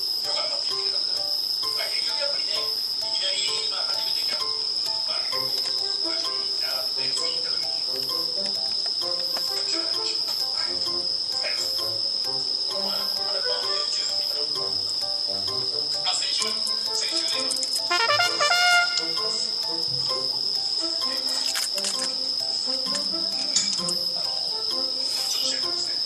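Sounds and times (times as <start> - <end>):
insects trilling: 0.0 - 26.0
quiet music: 0.0 - 26.0.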